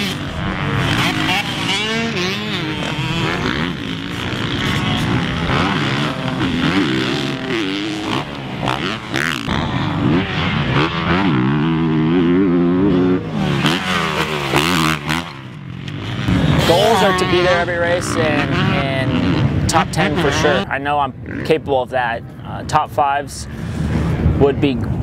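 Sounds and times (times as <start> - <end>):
motocross bike engine revving: 0.0 - 21.6.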